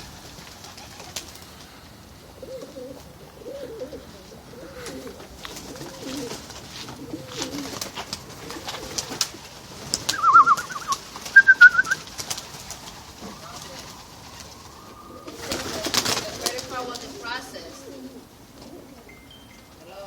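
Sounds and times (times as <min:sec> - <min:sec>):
pigeons cooing: 0:00.0 - 0:19.2
rapid trilling calls: 0:07.6 - 0:18.0.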